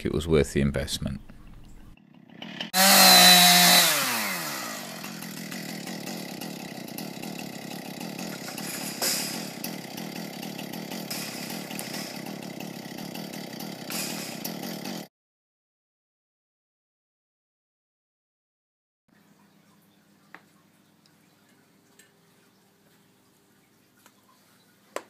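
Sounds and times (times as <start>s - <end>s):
chainsaw engine revving and idling: 2.0s - 15.1s.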